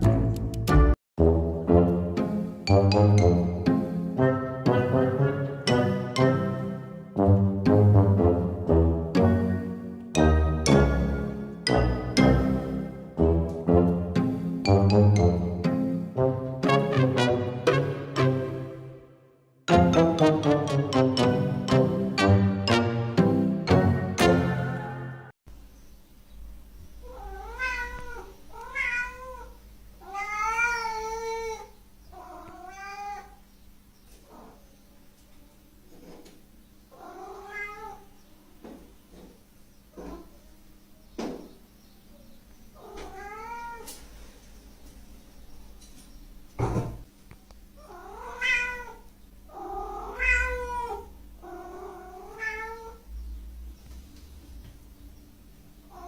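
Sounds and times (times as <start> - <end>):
cat meowing: 27.0 - 33.4, 37.0 - 38.1, 42.8 - 44.0, 47.8 - 53.1.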